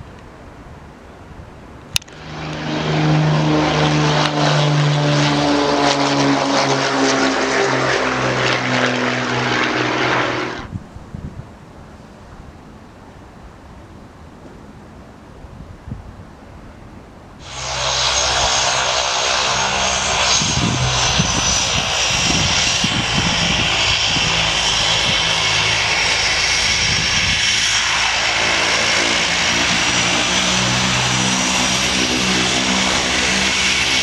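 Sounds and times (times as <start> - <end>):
turbine engine whining: 2.0 - 10.7, 17.4 - 34.0.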